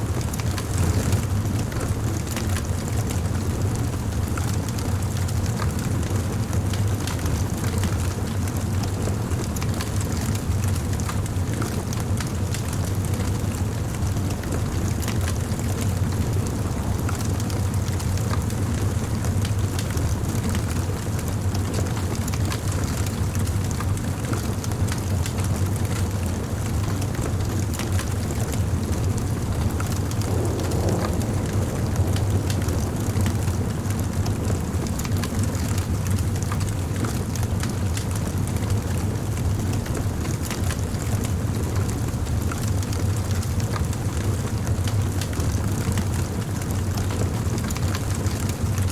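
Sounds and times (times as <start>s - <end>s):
wood fire rumbling: 0.0s - 48.9s
burning wood crackling: 26.2s - 48.6s.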